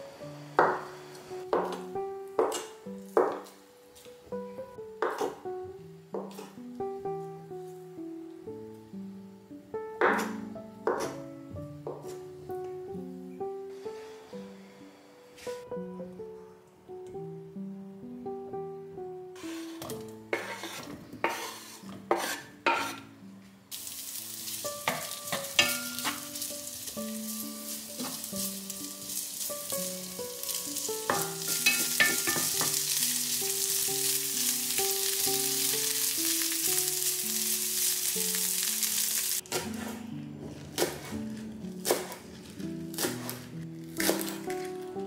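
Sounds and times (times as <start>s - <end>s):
potatoes tumbling into a pan: 23.7s - 34.8s
potatoes sizzling in hot oil: 23.7s - 39.5s
wooden spatula knocking pan: 24.8s - 26.4s, 31.0s - 32.9s.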